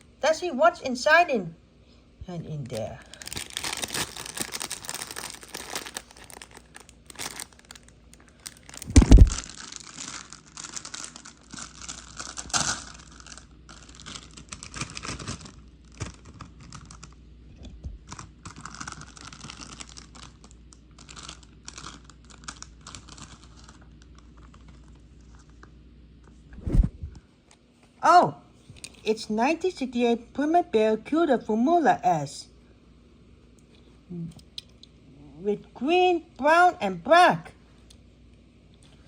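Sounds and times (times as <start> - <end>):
packaging crinkling and rustling: 2.6 - 17.2, 18.0 - 25.7
packaging ripping: 2.7 - 17.2, 18.1 - 25.0.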